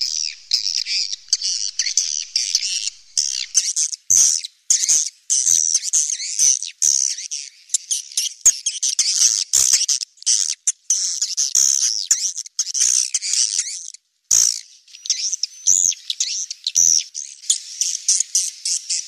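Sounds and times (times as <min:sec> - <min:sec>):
swiftlets chirping: 0:00.0 - 0:03.6.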